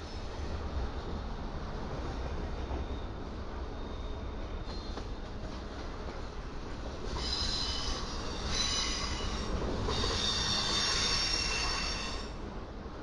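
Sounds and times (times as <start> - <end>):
freight train rumble: 0.0 - 13.0
train wheels squealing on rails: 2.1 - 5.9, 7.0 - 12.4.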